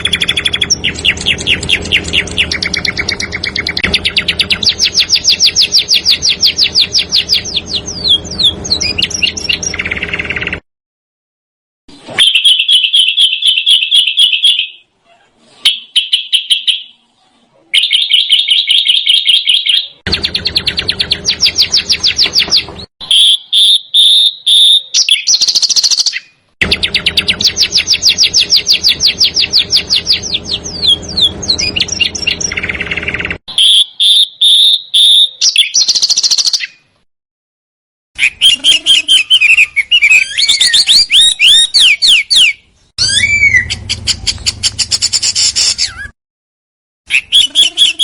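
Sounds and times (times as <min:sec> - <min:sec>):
songbird trills: 0:00.0 - 0:10.6.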